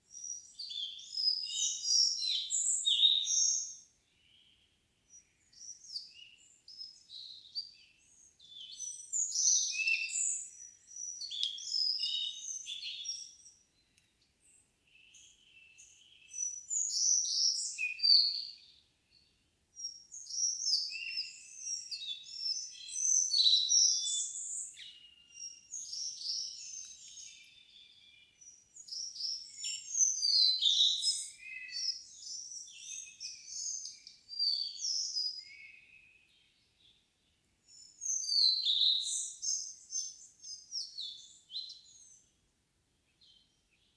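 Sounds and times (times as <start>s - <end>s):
songbirds singing: 0.0s - 42.4s, 43.0s - 43.9s.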